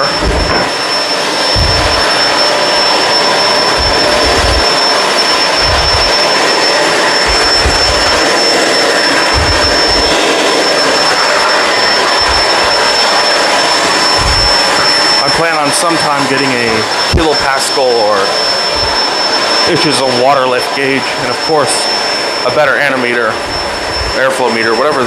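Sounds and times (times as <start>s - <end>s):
low bumps: 0.0s - 0.9s, 1.5s - 13.2s, 13.8s - 15.0s, 18.7s - 19.1s, 23.4s - 24.2s
vacuum cleaner running: 0.0s - 25.0s.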